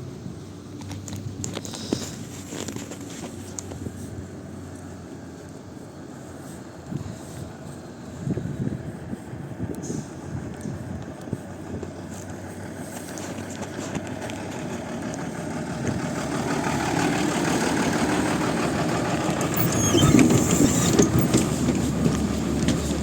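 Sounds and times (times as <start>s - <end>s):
bus engine running: 0.0s - 23.0s
faint high squeaks: 19.4s - 22.3s
body rattles: 19.5s - 23.0s.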